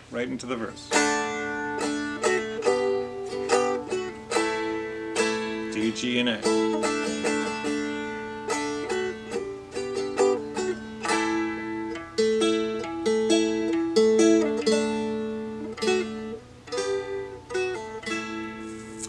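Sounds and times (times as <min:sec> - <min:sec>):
dulcimer strummed chords: 0:00.0 - 0:19.0.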